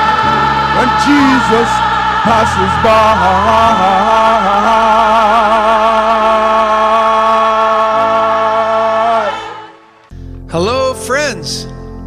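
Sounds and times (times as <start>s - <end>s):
gospel choir singing: 0.0s - 10.1s.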